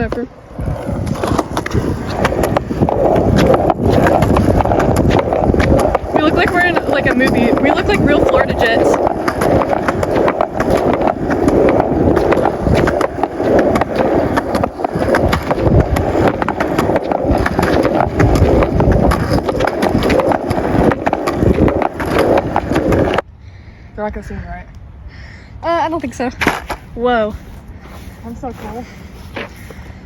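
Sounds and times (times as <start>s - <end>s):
skateboard wheels rumbling: 0.0s - 23.3s, 26.3s - 30.0s
skateboard clacking over bumps: 1.0s - 23.2s.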